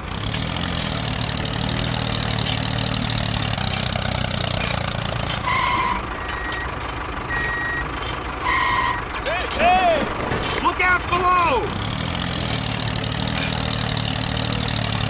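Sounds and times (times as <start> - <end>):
vehicle engine idling: 0.0 - 15.0
reversing beeps: 5.5 - 6.7, 7.3 - 7.9.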